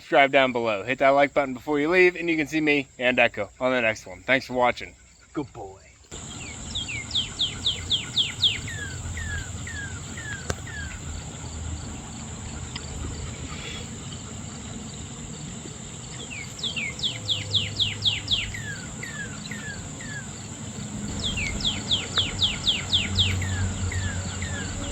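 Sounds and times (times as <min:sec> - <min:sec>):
crickets droning: 0:00.0 - 0:24.9
songbird whistling: 0:06.3 - 0:11.2, 0:16.2 - 0:20.4, 0:21.1 - 0:24.9.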